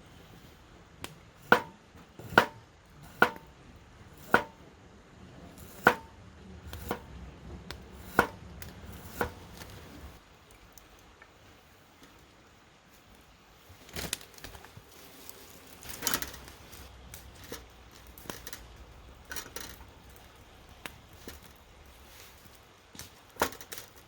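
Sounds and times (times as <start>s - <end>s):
blade chopping: 5.6s - 9.7s.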